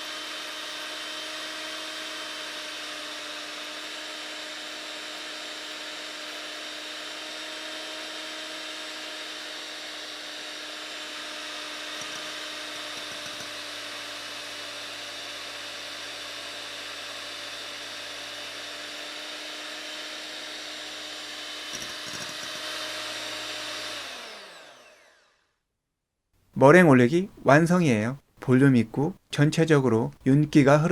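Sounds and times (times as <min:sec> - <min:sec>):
electric hand mixer whining: 0:00.0 - 0:25.5.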